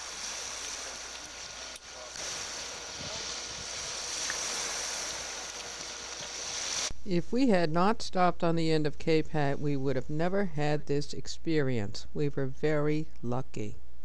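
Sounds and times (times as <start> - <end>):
sea noise: 0.0 - 7.0
wind: 0.0 - 7.4.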